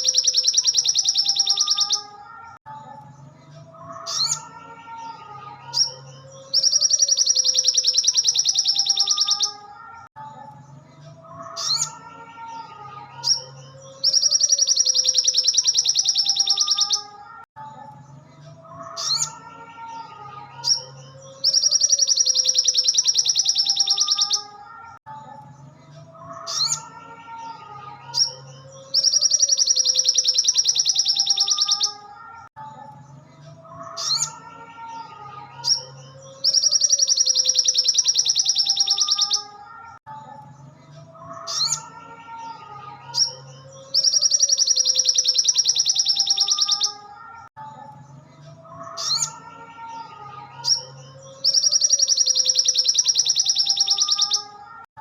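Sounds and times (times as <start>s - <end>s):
bird rapid high trill: 0.0s - 2.1s, 5.7s - 9.6s, 13.2s - 17.1s, 21.4s - 24.6s, 28.2s - 32.0s, 36.4s - 39.6s, 43.2s - 47.0s, 50.6s - 54.6s.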